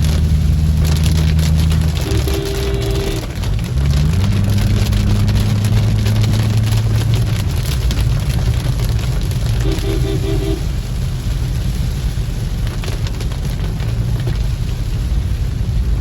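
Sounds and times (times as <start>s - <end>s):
heavy rain falling: 0.0s - 16.0s
vehicle engine running: 0.0s - 16.0s.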